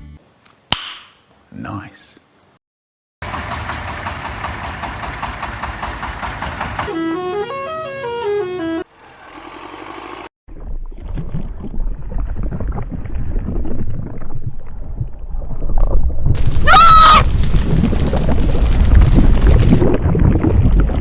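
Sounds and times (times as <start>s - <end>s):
cartoon rumbling noise: 16.4s - 18.3s.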